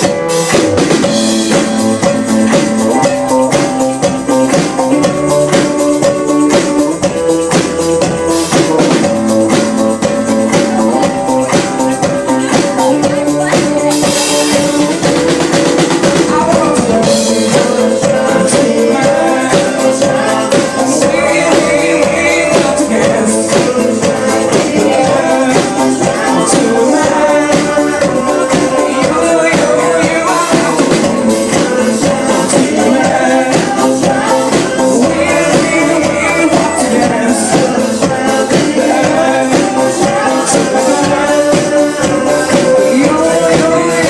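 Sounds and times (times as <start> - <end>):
drum kit beat: 0.0 - 44.0
live band music: 0.0 - 44.0.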